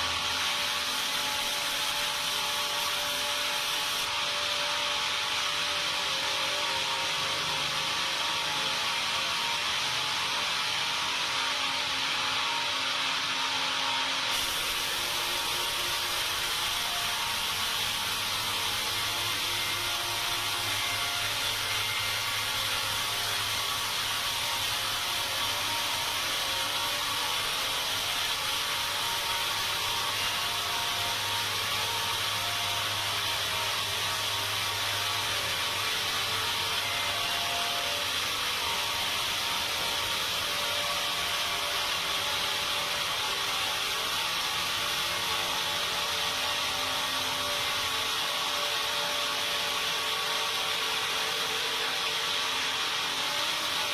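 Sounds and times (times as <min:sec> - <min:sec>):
sawmill saw cutting timber: 0:00.0 - 0:53.9.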